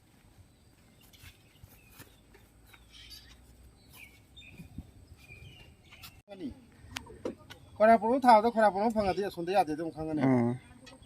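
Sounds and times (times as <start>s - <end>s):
faint outdoor ambience: 0.0s - 11.0s.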